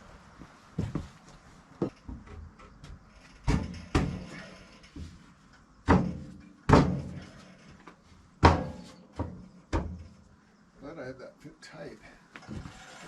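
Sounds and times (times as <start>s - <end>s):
wooden knocks and thuds: 1.8s - 5.2s, 5.8s - 10.2s.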